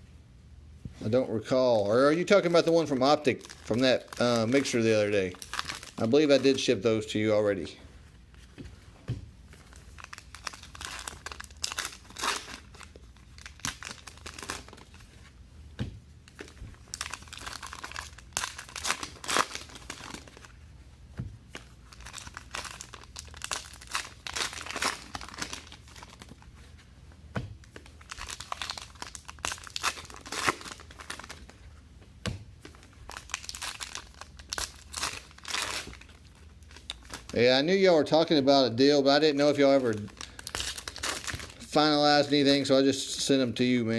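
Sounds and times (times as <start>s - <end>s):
card pack wrappers tearing and crinkling: 2.1s - 6.8s, 9.6s - 15.0s, 16.3s - 20.6s, 21.6s - 26.5s, 27.7s - 31.5s, 32.6s - 37.5s, 39.4s - 41.7s.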